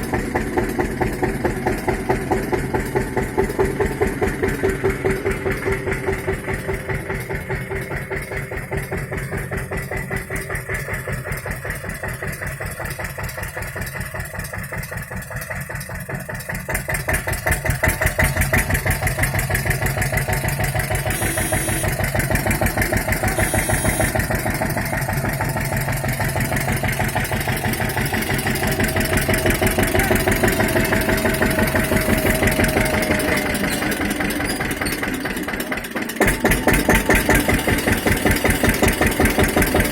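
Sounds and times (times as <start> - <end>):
tractor engine running: 0.0 - 39.9
thin steady whine: 21.1 - 22.0, 23.3 - 24.2.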